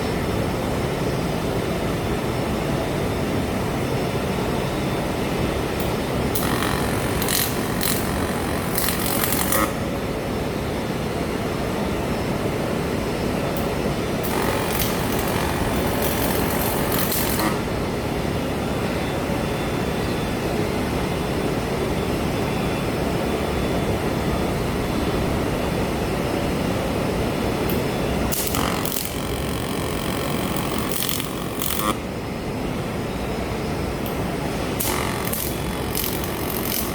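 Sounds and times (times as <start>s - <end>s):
shop machine noise: 0.0s - 23.1s, 23.9s - 36.9s
welding arc hiss: 5.8s - 9.8s, 14.2s - 17.7s, 27.7s - 32.0s, 34.0s - 36.9s.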